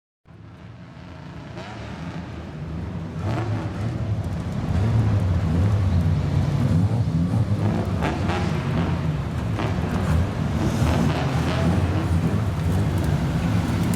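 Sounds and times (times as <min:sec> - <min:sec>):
car exhaust rumbling: 0:03.8 - 0:13.9.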